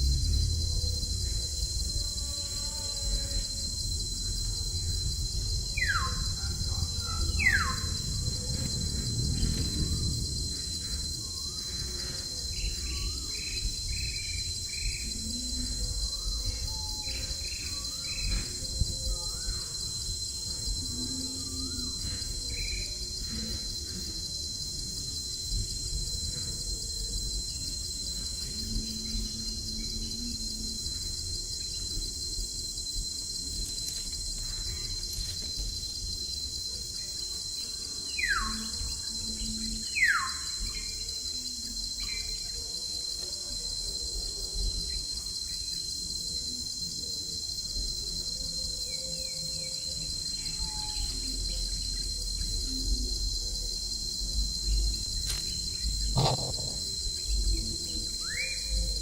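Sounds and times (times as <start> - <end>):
low rumbling background noise: 0.0 - 16.6
high insect drone: 0.0 - 59.0.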